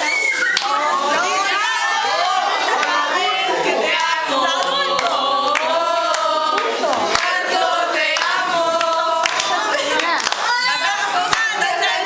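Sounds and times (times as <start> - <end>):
young women singing unaccompanied: 0.0 - 12.0
hand claps: 0.5 - 0.8, 4.0 - 7.4, 8.1 - 10.6.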